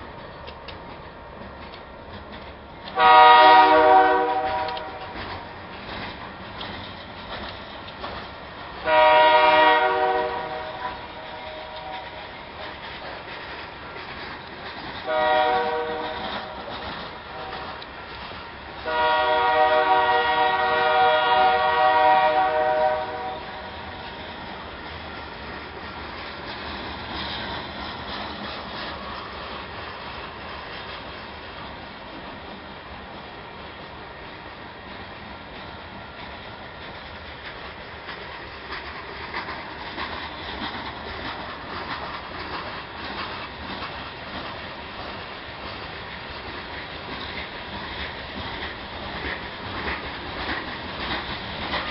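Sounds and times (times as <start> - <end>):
passing train running: 0.0 - 51.9
wheels clacking over rail joints: 0.0 - 51.9
locomotive air horn blast: 3.0 - 5.2, 8.8 - 12.2, 15.1 - 16.7, 17.3 - 17.8, 18.8 - 23.8.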